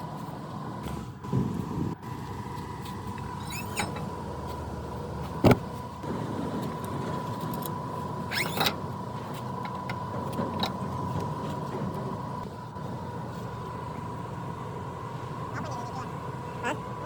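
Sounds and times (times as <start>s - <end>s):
steady mechanical hum: 0.0s - 17.0s
metal clank: 3.4s - 4.1s.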